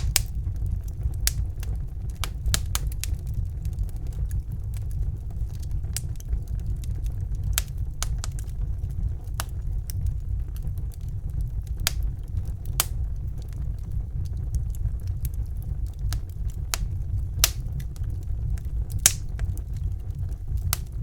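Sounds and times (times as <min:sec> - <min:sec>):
wood fire crackling and popping: 0:00.0 - 0:21.0.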